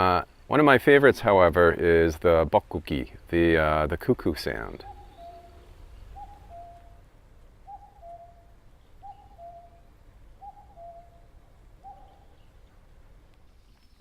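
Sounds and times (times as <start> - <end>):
cuckoo calling: 4.4 - 14.0.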